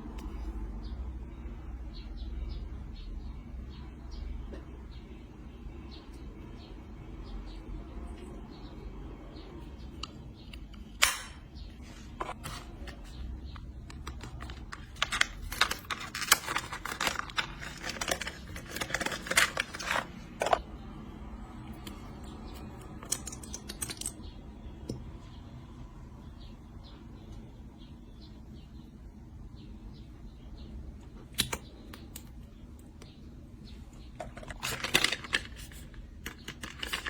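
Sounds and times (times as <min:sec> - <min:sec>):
packaging crinkling: 0:14.0 - 0:20.6.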